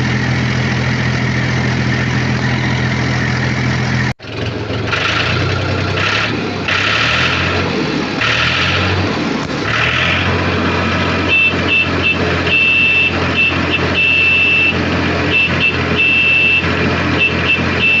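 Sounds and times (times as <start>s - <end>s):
vehicle engine running: 0.0s - 18.0s
high electronic beeping: 11.2s - 18.0s.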